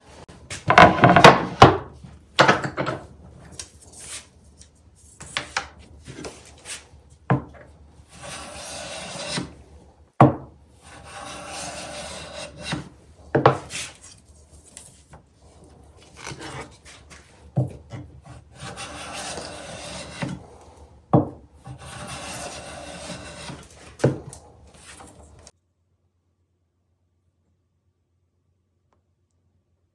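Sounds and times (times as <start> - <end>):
wooden knocks: 0.5 - 3.1, 10.2 - 10.5
hand plane shaving wood: 7.6 - 9.9, 10.8 - 21.0, 21.6 - 25.5.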